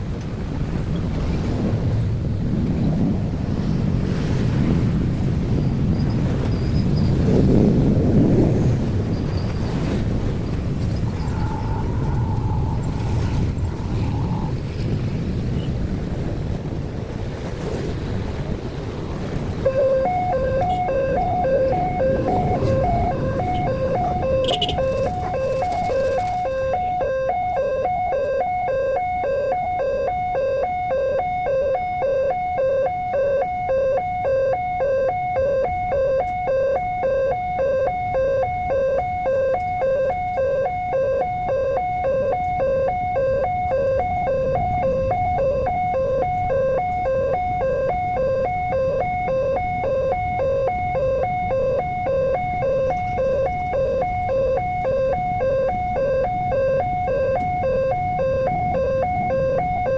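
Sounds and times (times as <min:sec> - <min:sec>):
low rumble: 0:10.5 - 0:15.3.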